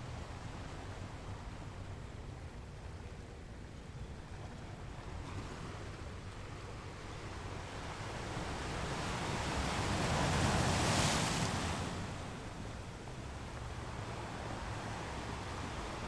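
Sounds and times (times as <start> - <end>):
ocean waves on shore: 7.9 - 16.0.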